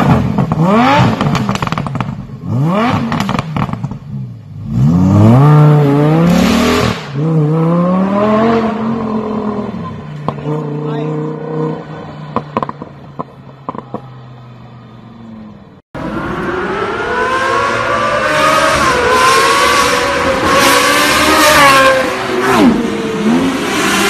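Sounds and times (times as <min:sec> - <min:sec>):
car engine revving hard: 0:00.0 - 0:03.8, 0:04.6 - 0:09.8, 0:16.0 - 0:24.0.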